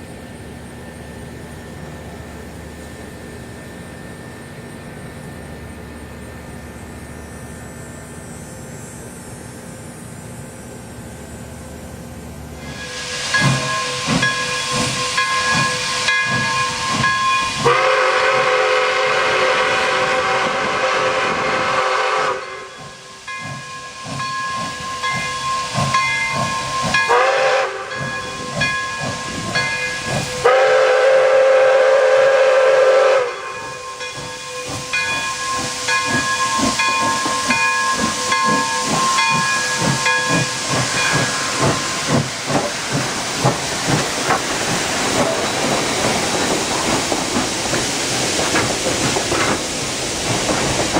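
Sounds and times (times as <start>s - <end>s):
steam hissing: 0.0s - 50.9s
steam locomotive exhaust chuffs: 0.0s - 50.9s.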